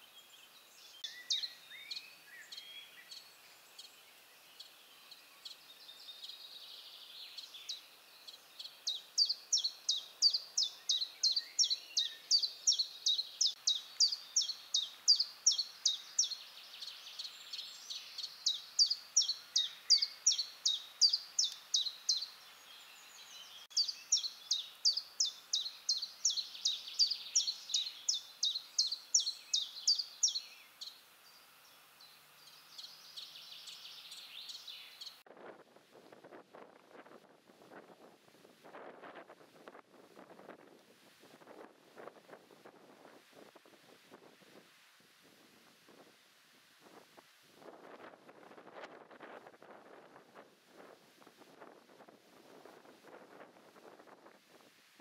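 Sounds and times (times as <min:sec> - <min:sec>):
songbird singing high notes: 0:08.6 - 0:30.9.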